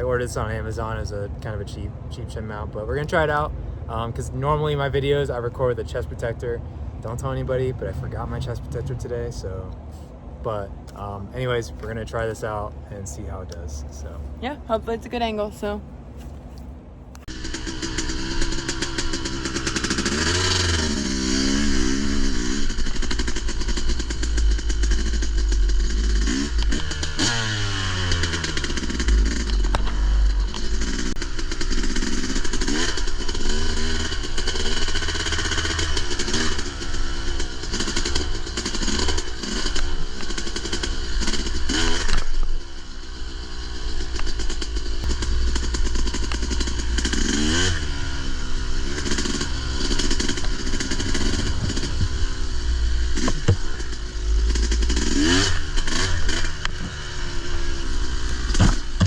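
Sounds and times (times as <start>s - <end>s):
bike rattling and clatter: 17.3s - 59.0s
dirt bike engine revving: 17.3s - 59.0s.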